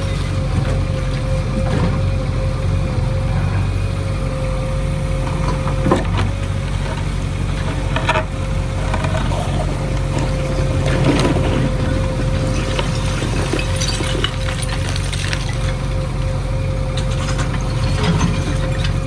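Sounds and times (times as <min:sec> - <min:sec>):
diesel engine running: 0:00.0 - 0:19.0
steady whine: 0:02.2 - 0:19.0.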